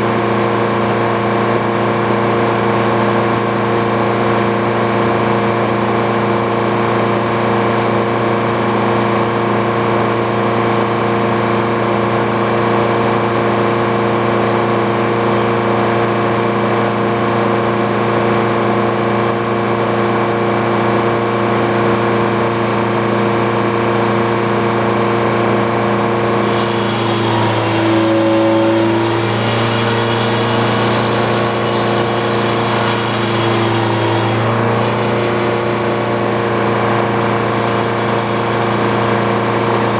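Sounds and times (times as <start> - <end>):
sawmill running: 26.0 - 39.9
saw blade cutting log: 26.4 - 39.9.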